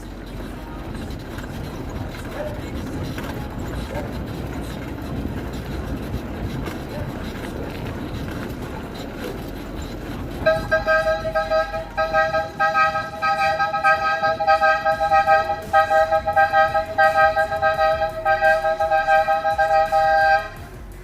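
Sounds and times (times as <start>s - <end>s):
rushing riding noise: 0.0s - 21.0s
two-tone vehicle horn honking: 10.4s - 20.8s.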